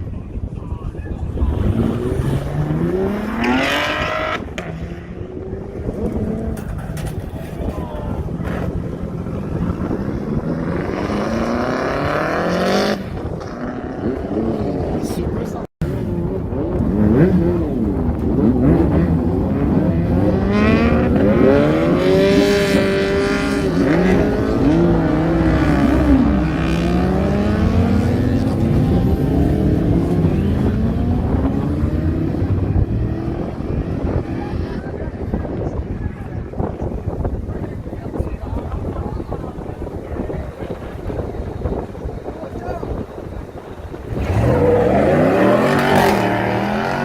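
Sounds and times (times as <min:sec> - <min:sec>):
car engines revving: 0:00.7 - 0:47.0
car engine accelerating hard: 0:15.9 - 0:35.2, 0:43.9 - 0:47.0.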